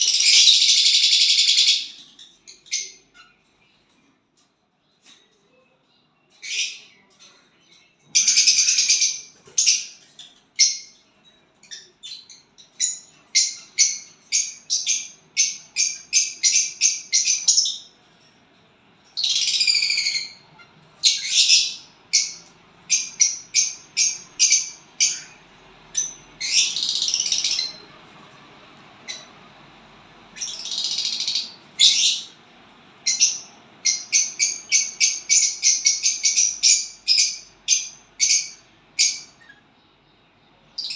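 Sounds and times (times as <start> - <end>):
small bird chirping: 0.0 - 4.1, 4.8 - 18.0, 19.1 - 28.0, 29.0 - 29.4, 30.3 - 32.4, 33.0 - 40.9
harsh raspy bird calls: 30.4 - 32.4.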